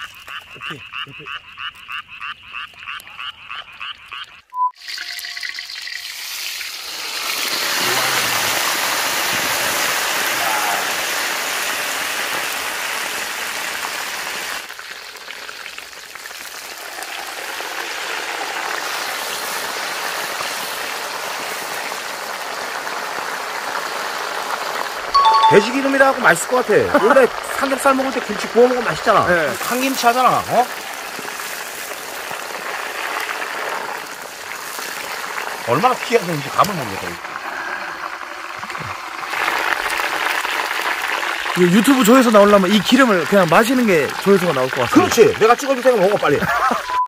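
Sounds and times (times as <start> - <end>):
frog-like croaking pulses: 0.0 - 4.6
food sizzling in hot fat: 3.8 - 46.9.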